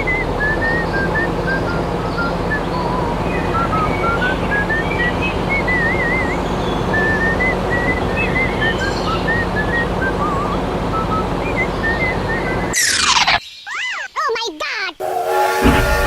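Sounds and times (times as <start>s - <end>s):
whistled melody: 0.0s - 12.8s
low hum: 15.0s - 16.0s.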